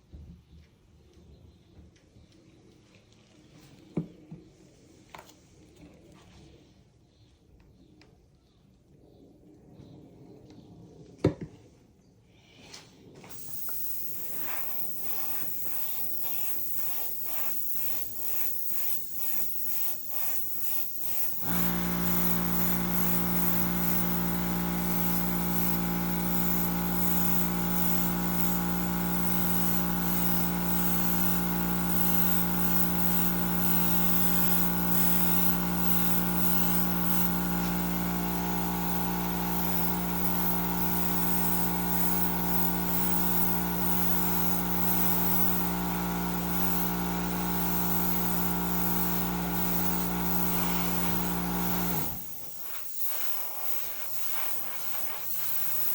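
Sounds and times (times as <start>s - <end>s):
air and spray hissing: 13.3s - 55.9s
air compressor humming: 13.3s - 55.9s
rhythmic strokes: 13.3s - 55.9s.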